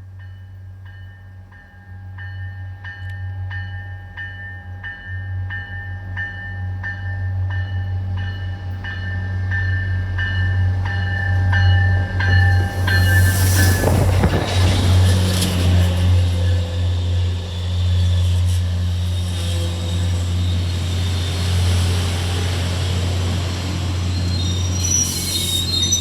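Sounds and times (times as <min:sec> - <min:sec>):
train humming: 0:00.0 - 0:26.0
train rushing noise: 0:07.0 - 0:26.0.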